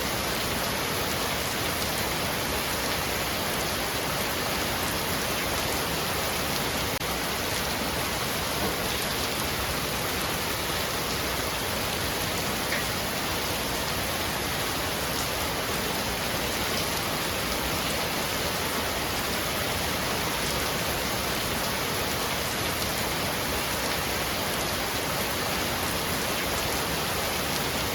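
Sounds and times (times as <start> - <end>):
heavy rain on a roof: 0.0 - 27.9.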